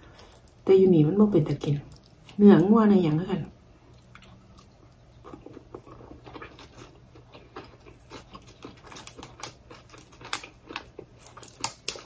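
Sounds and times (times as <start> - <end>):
person chewing sticky rice: 3.8 - 12.0.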